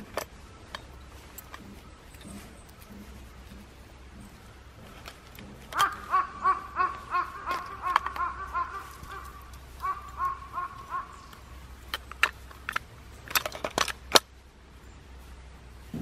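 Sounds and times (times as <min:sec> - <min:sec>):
bird calling short notes: 0:05.7 - 0:11.7.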